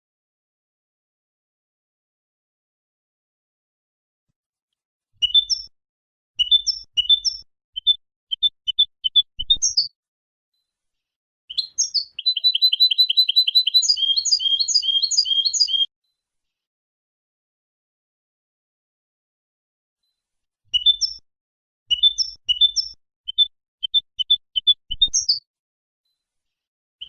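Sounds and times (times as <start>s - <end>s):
goldfinch singing: 6.4s - 9.9s, 11.5s - 15.9s, 20.8s - 21.2s, 21.9s - 25.4s.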